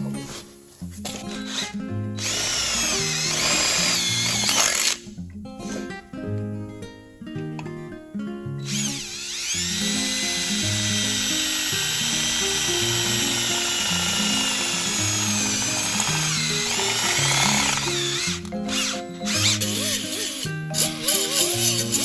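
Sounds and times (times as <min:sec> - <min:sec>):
background music: 0:00.0 - 0:22.0
power tool whining on sheet metal: 0:01.1 - 0:05.0, 0:08.6 - 0:22.0.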